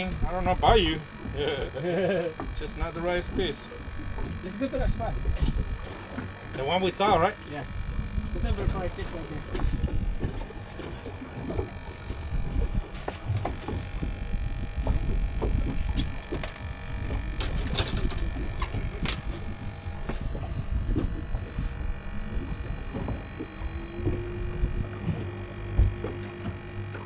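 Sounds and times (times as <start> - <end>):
boat engine rumble: 0.0 - 27.0
knocks and clatter: 17.4 - 19.4.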